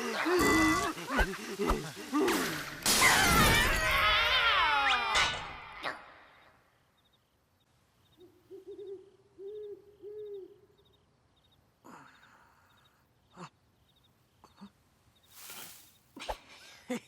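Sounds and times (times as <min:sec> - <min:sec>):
owl hooting: 0:08.2 - 0:10.8.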